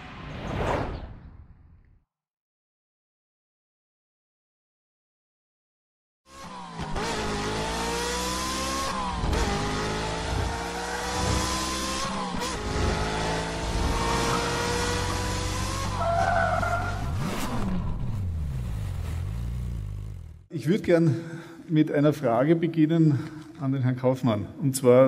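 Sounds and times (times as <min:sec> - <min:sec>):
sports car engine accelerating: 0:06.3 - 0:20.5.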